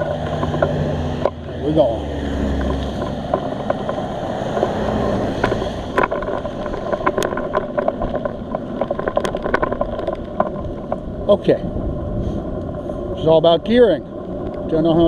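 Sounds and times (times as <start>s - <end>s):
small clicks and ticks: 0.0s - 1.4s, 2.5s - 11.1s, 13.6s - 15.0s
low rumble: 0.0s - 15.0s
wind on microphone: 0.0s - 15.0s.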